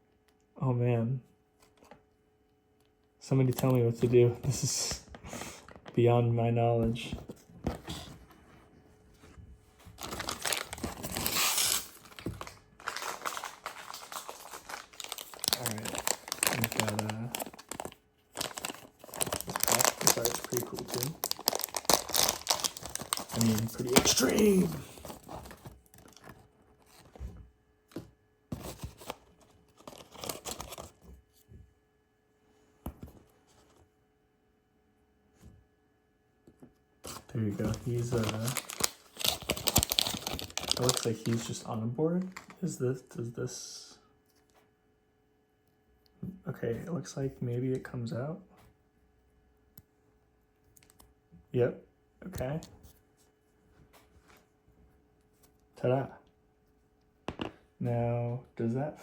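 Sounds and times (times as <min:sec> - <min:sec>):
toy packaging crinkling: 0:10.0 - 0:26.4, 0:29.8 - 0:30.9, 0:37.1 - 0:42.6.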